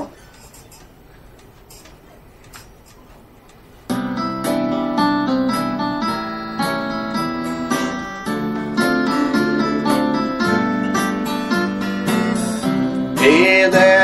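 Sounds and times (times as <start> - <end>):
piano keeping a beat: 3.2 - 14.0
strummed acoustic guitar: 3.9 - 14.0.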